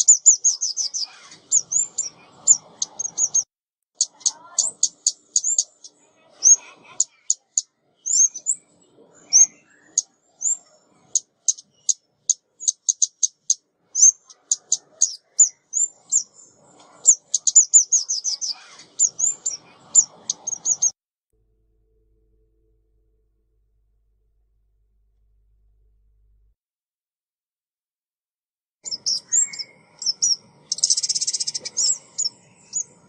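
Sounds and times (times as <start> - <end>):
songbird calling: 0.0 - 21.0, 28.8 - 33.0.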